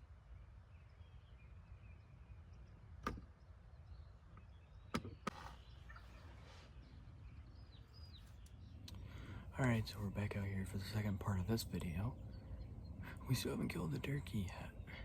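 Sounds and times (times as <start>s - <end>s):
faint bird chirps: 0.0s - 15.0s
wind rumble: 6.2s - 15.0s.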